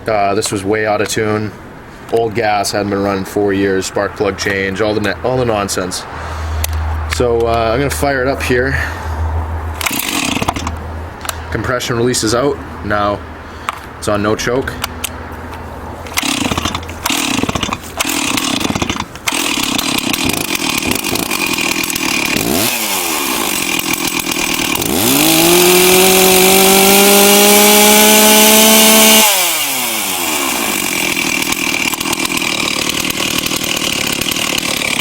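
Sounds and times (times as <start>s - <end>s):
chainsaw starting and revving: 9.8s - 10.8s, 16.1s - 35.0s.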